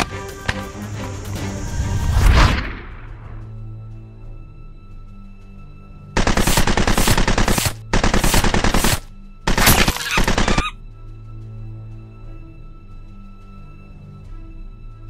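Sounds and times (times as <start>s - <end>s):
quiet background music: 0.0s - 15.0s
automatic gunfire: 6.2s - 10.7s.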